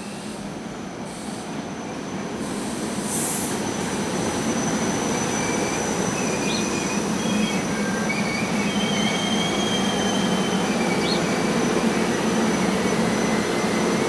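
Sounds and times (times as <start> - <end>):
electric train rumbling past: 0.0 - 14.0
high wheel squeals: 3.6 - 14.0.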